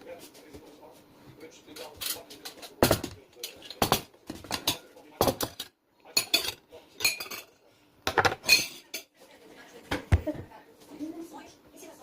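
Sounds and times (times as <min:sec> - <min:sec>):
utensils clinking against pots: 0:01.7 - 0:09.1.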